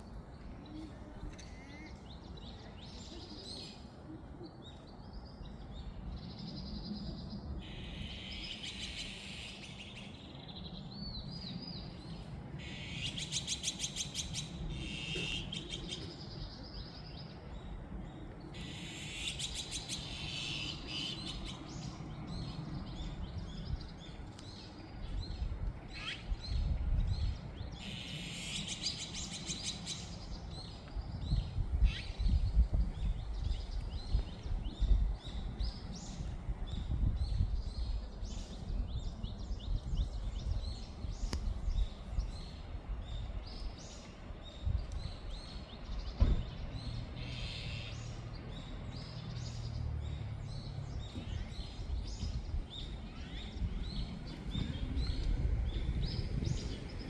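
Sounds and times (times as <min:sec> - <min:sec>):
songbirds singing and chirping: 0:00.0 - 0:57.0
steady low rumble: 0:14.2 - 0:27.8, 0:48.0 - 0:57.0.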